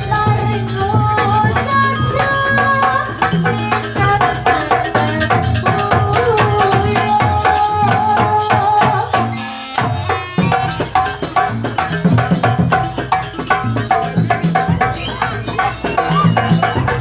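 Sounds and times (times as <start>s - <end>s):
rapid hand-drum strokes: 0.0s - 17.0s
gamelan music: 8.5s - 17.0s.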